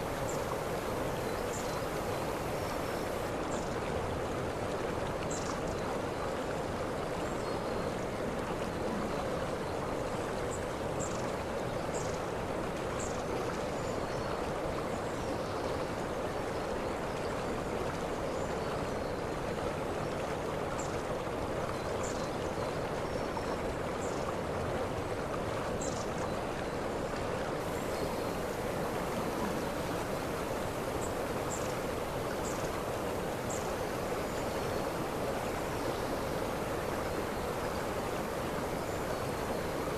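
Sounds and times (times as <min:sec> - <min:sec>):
waterfall rushing: 0:00.0 - 0:03.3, 0:27.6 - 0:39.9.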